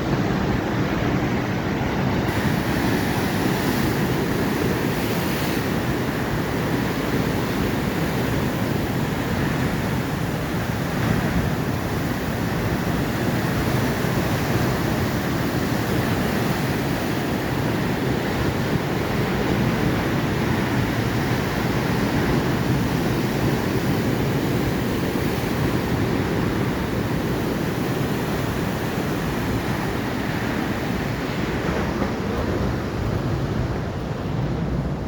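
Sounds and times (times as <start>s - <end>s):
waves breaking on shore: 0.0s - 35.0s.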